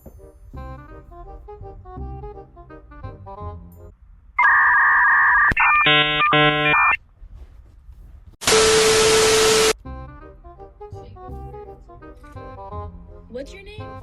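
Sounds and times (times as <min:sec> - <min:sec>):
harsh buzzer: 0:04.4 - 0:07.0, 0:08.4 - 0:09.8
loud static hiss with tone: 0:04.4 - 0:07.0, 0:08.4 - 0:09.8
two-tone electronic beep: 0:04.4 - 0:07.0.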